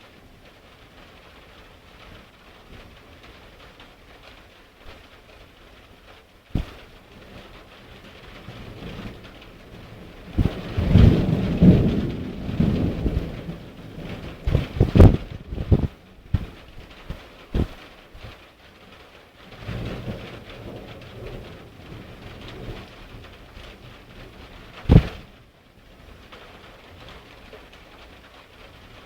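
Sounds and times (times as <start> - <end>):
steady rain: 0.0 - 29.0
thunder rumbling: 6.5 - 18.4, 19.5 - 25.4
sharp thump: 6.6 - 6.8, 14.5 - 16.6, 17.6 - 17.8, 24.9 - 25.2.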